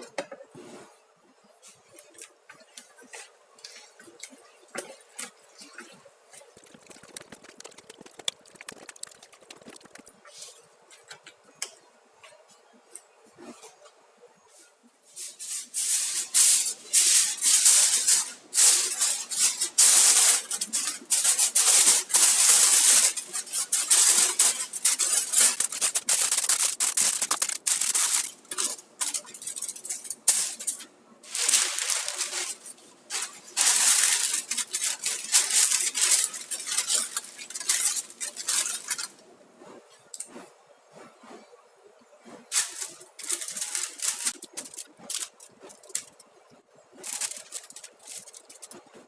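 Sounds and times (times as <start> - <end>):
food stirred in a pan: 15.1 - 39.2.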